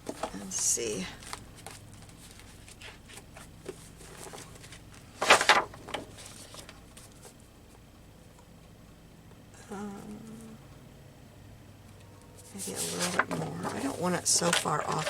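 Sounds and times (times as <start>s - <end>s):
paper rustling and tapping: 1.2s - 7.8s, 12.7s - 15.0s.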